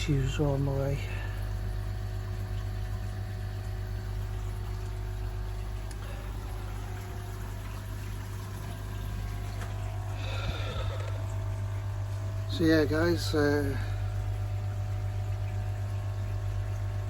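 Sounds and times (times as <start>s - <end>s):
pond pump humming: 0.0s - 17.0s
water pouring and splashing: 0.0s - 17.0s.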